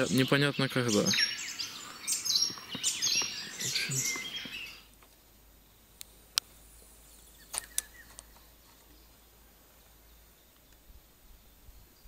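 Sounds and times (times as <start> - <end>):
small birds chirping: 0.0 - 12.0
sharp clicks: 7.5 - 8.3.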